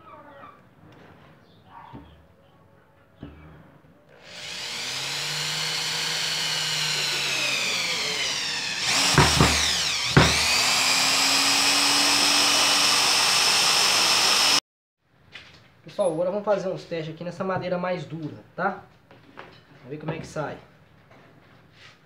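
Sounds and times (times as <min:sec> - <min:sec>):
power drill driving screw into wood: 0:04.1 - 0:14.6
knocks: 0:08.9 - 0:10.5.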